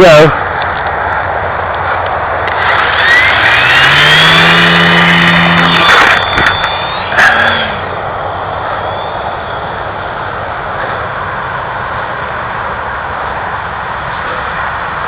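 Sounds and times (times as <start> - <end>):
model plane motor rushing: 2.4 - 9.6.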